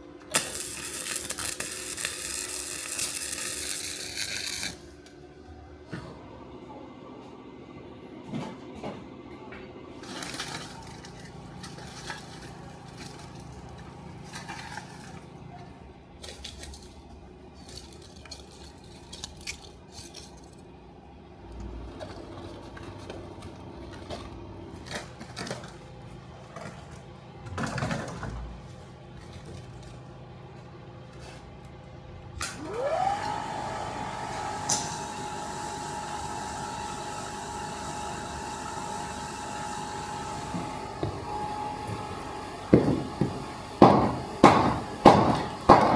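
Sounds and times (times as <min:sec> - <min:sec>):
steel pieces clinking: 0:17.6 - 0:20.6.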